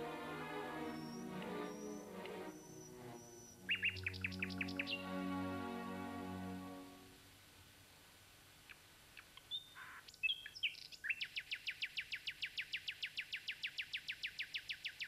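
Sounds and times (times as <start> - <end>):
bird chirping: 0.0 - 6.7, 9.2 - 15.0.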